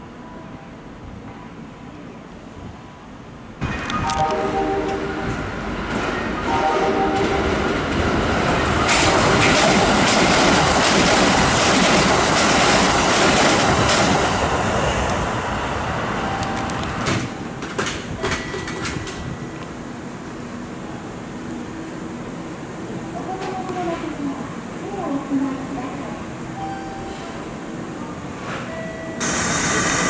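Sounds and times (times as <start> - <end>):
electric train passing: 2.2 - 28.2, 28.9 - 30.0
wheels clacking over rail joints: 7.2 - 14.4.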